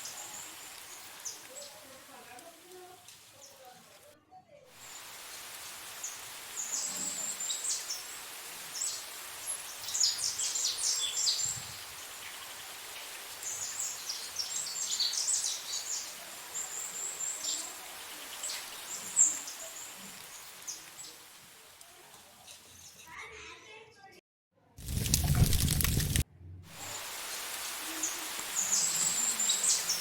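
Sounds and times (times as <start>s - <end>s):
small birds chirping: 0.0s - 4.0s, 4.8s - 21.6s, 26.9s - 30.0s
faint steady hiss: 0.0s - 23.0s, 24.8s - 30.0s.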